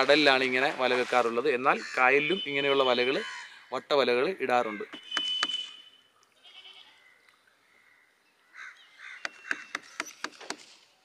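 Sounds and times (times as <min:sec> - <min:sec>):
harsh bird calls: 0:01.7 - 0:10.4.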